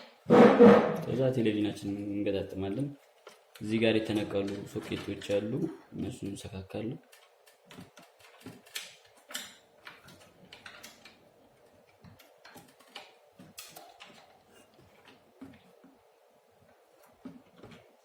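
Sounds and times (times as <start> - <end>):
wire connectors clicking: 7.0 - 15.8.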